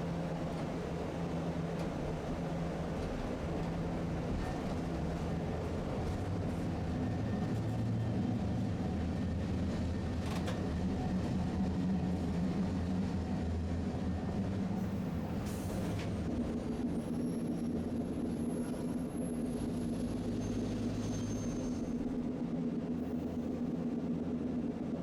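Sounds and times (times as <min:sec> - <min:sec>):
streetcar rumbling on rails: 0:00.0 - 0:25.0.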